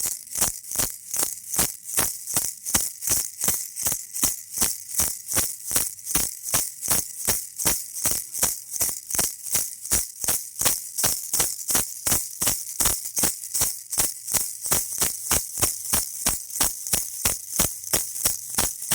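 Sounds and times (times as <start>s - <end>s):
baby rattle shaking: 0.0s - 18.9s.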